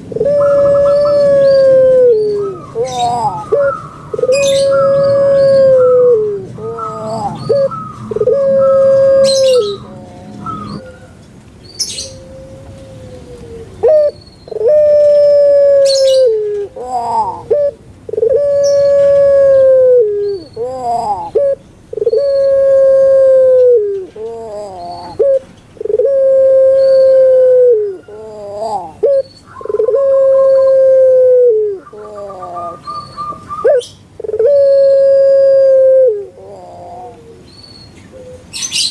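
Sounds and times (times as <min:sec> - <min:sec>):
dove cooing: 0:00.0 - 0:11.2, 0:11.8 - 0:38.9.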